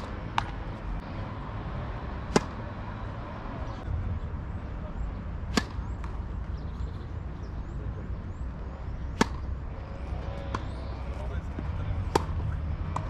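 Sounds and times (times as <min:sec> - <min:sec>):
tennis ball struck: 0:00.0 - 0:00.8, 0:02.2 - 0:02.7, 0:05.5 - 0:06.3, 0:09.0 - 0:13.0.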